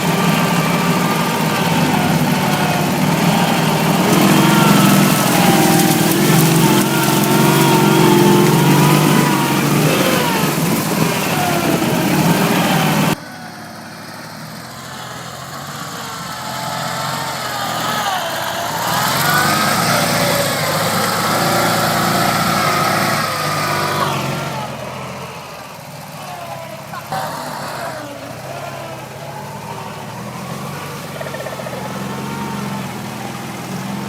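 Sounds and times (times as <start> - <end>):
engine with rising and falling pitch: 0.0 - 34.0
motorcycle engine running loudly: 0.0 - 34.0.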